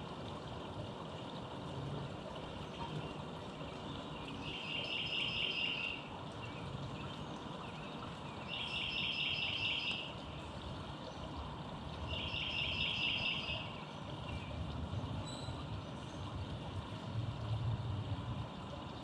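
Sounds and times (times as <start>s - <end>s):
distant traffic rumble: 0.0s - 19.0s
songbird trill: 4.1s - 10.2s, 12.1s - 14.6s, 15.2s - 15.6s.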